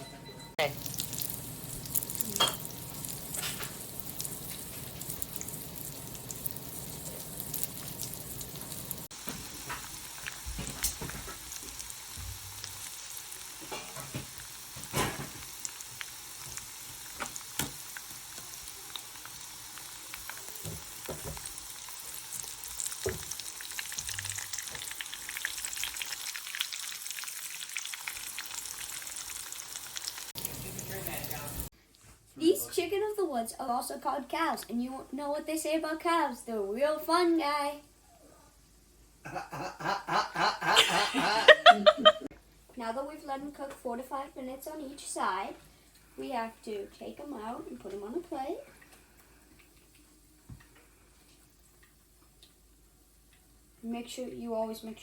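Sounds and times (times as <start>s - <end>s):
mushrooms frying in hot oil: 0.6s - 31.7s, 42.8s - 55.0s
oil crackles and pops: 0.7s - 31.7s, 47.8s - 53.6s.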